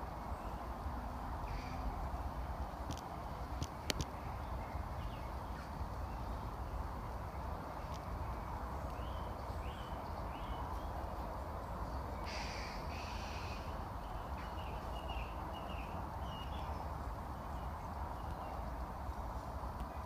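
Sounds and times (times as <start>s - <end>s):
steady background hiss: 0.0s - 20.0s
short high bird calls: 12.2s - 13.8s.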